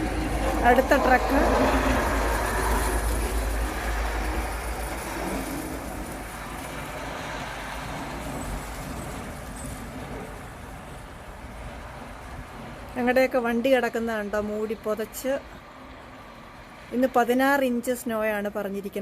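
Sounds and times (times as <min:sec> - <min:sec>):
snowplow truck driving past: 0:00.0 - 0:13.0.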